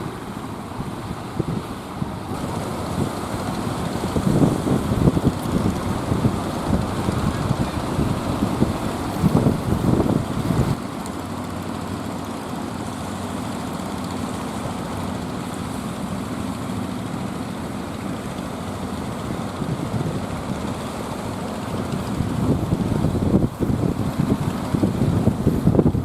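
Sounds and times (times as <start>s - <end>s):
rush of noise: 0.0s - 11.0s
boat engine droning: 0.0s - 26.0s.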